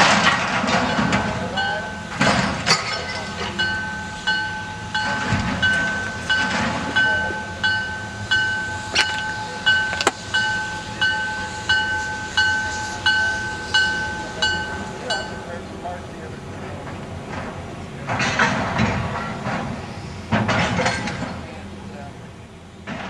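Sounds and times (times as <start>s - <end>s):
sharp metal clanks: 0.0s - 15.4s
train rumble: 0.0s - 23.0s
railroad crossing bell ringing: 0.7s - 16.1s.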